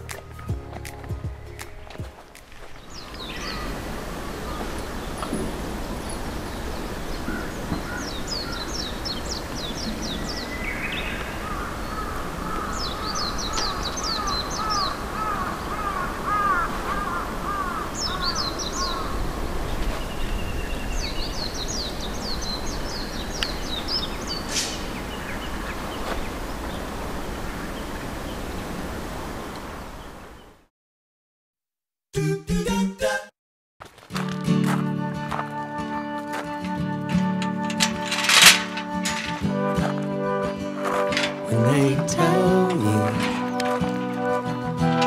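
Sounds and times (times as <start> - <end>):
birds calling and singing: 1.1 - 28.6, 36.5 - 45.0
background hiss: 20.9 - 30.4.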